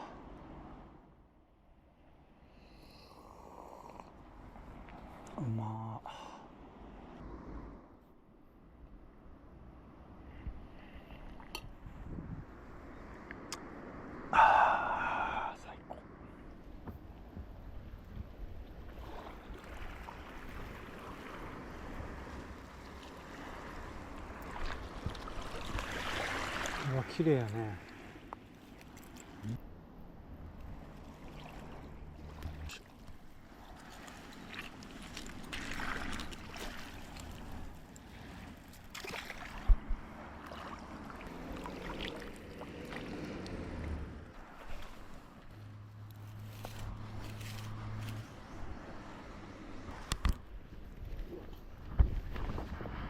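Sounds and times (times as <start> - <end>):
wind rumble on microphone: 9.0 - 14.3, 15.4 - 26.2, 39.5 - 41.6, 46.4 - 53.0
sea water lapping: 18.0 - 53.0.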